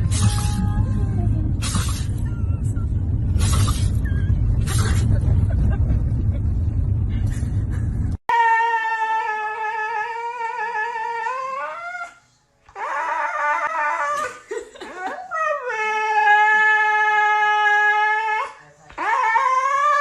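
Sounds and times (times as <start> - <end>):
dog howling: 8.3 - 12.2
dog whining cry: 8.3 - 20.0.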